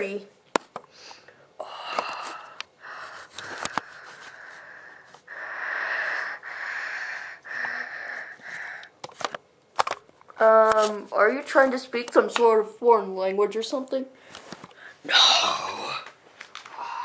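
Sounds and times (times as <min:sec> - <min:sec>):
person wheezing: 0:15.1 - 0:16.0.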